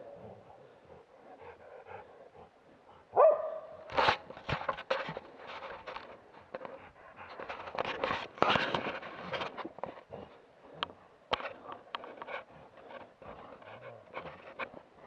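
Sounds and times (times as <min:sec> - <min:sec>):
dog barking: 0:03.1 - 0:03.9
rustling and cracking: 0:03.7 - 0:15.0.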